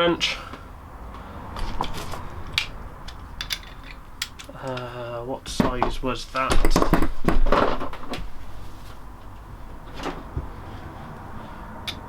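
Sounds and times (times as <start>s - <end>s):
tools clicking and knocking: 1.6s - 8.4s.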